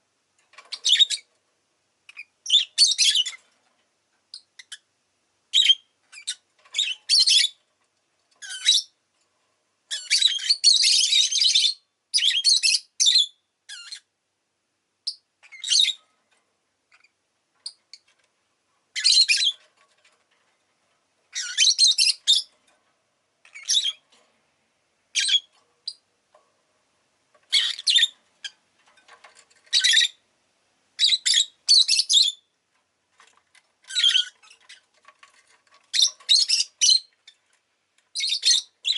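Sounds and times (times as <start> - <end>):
lovebird chirping and squawking: 0.6 - 1.3, 2.1 - 3.5, 4.3 - 4.9, 5.5 - 7.6, 8.4 - 9.0, 9.9 - 14.1, 15.1 - 16.1, 16.9 - 18.1, 18.9 - 19.7, 21.3 - 22.6, 23.4 - 24.0, 25.1 - 26.0, 27.5 - 28.6, 29.6 - 30.2, 31.0 - 32.5, 33.8 - 34.9, 35.7 - 37.4, 38.1 - 38.9.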